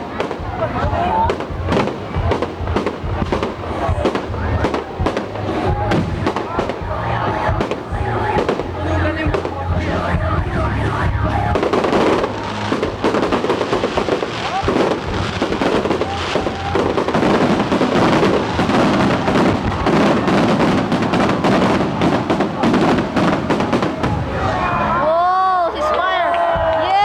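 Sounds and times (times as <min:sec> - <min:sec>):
fireworks bangs and crackles: 0:00.0 - 0:25.2.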